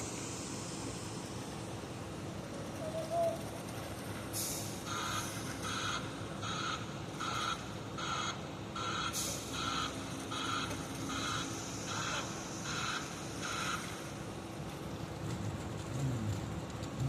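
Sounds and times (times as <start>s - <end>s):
engine running: 9.4s - 17.0s.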